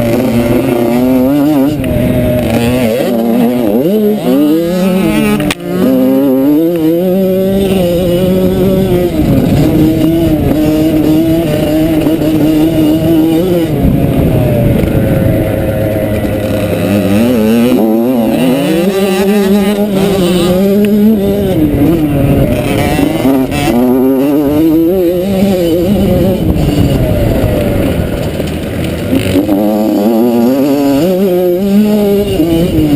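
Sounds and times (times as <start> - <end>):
motorbike engine revving: 0.0 - 32.9.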